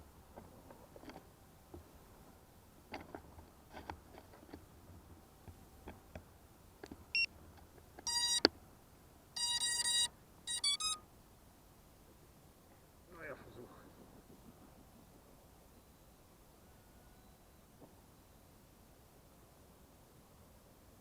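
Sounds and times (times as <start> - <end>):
electronic buzzer beeps: 8.1 - 8.4, 9.4 - 11.0.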